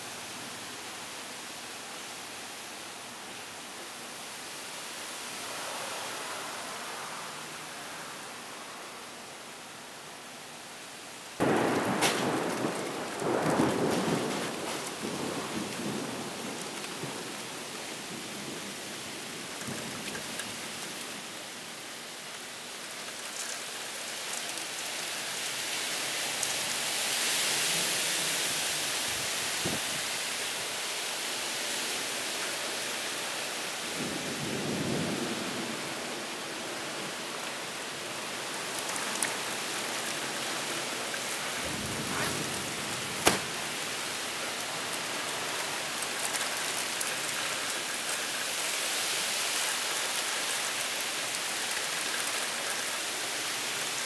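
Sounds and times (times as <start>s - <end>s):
heavy rain pouring: 0.0s - 54.0s
thunder rumbling: 11.4s - 17.4s.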